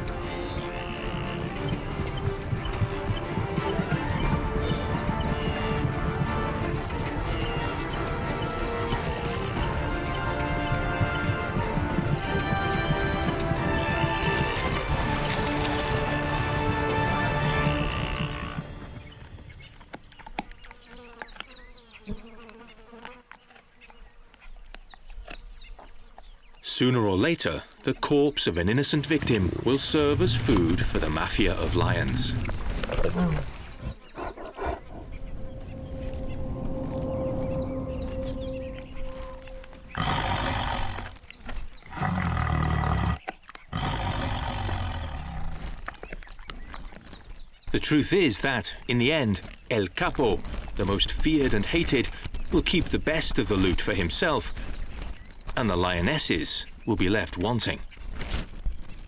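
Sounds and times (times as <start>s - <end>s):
music: 0.0s - 19.5s, 35.0s - 40.0s
insect buzzing: 20.6s - 24.0s
lions snarling and roaring: 29.2s - 35.4s, 39.9s - 45.8s.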